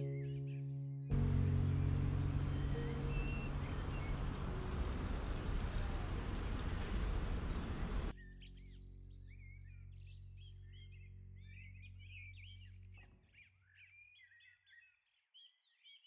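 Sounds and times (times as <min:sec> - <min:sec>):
birds chirping: 0:00.0 - 0:08.1
faint background music: 0:00.0 - 0:13.2.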